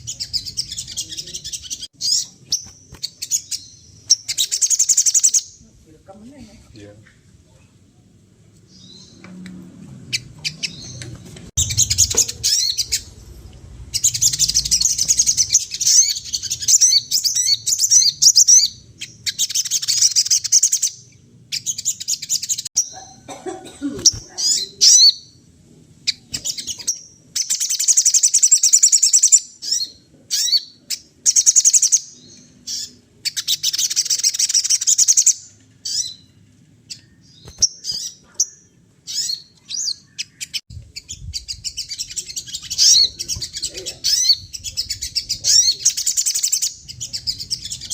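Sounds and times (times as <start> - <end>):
songbird twittering: 0.0 - 5.7, 10.1 - 23.2, 24.0 - 25.4, 26.0 - 36.3, 36.9 - 47.9.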